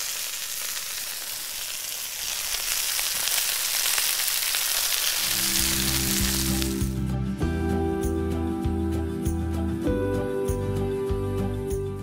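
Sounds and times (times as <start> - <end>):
food sizzling in frying pan: 0.0 - 7.1.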